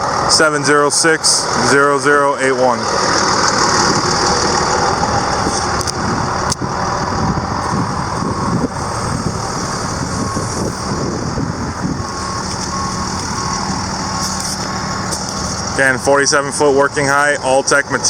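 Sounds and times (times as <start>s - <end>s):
diesel truck engine running: 0.0s - 18.0s
short warning beeps: 9.9s - 18.0s.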